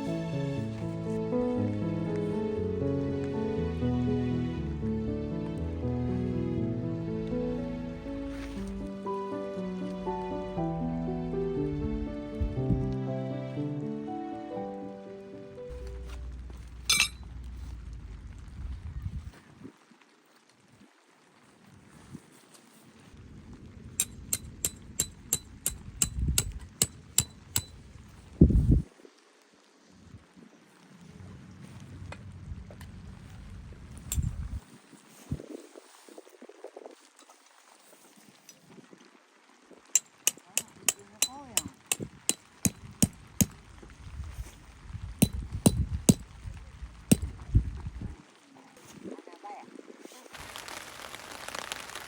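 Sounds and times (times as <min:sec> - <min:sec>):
low rumble: 0:15.7 - 0:19.3
low rustling: 0:15.7 - 0:19.7, 0:50.2 - 0:52.0
tent peg being hammered: 0:16.9 - 0:17.2, 0:24.0 - 0:27.8, 0:40.0 - 0:43.6, 0:45.2 - 0:46.3, 0:47.1 - 0:47.3
sharp metallic strikes: 0:24.0 - 0:27.7.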